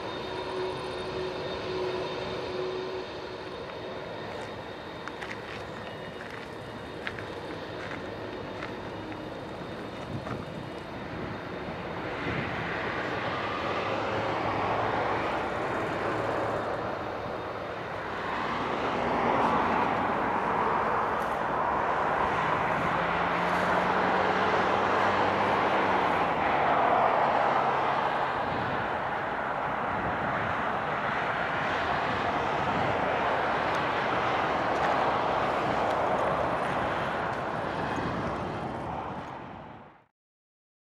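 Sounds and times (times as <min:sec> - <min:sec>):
faint engine tone: 0:00.0 - 0:26.0
jet engines roaring: 0:00.0 - 0:40.0.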